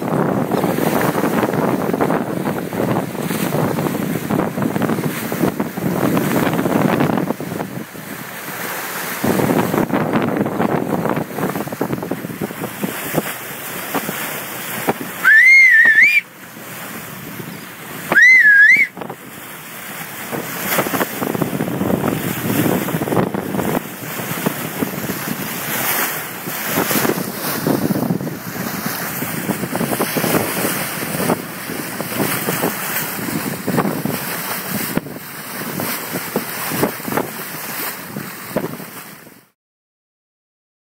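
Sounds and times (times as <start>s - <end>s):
wind buffeting microphone: 0.0s - 39.4s
water rushing past hull: 0.0s - 39.6s
short wavering whistles: 15.2s - 16.3s, 17.5s - 18.9s.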